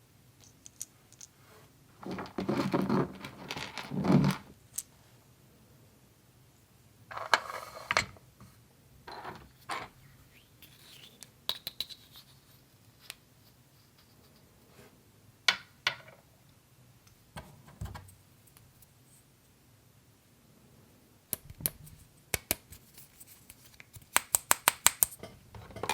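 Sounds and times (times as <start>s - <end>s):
toy pieces rustling and scraping: 2.0s - 4.9s, 9.6s - 13.2s.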